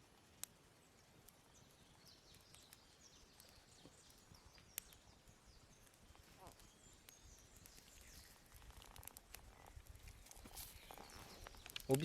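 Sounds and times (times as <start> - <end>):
sharp snaps of fire: 0.0 - 12.0
twig fire crackling: 0.0 - 12.0.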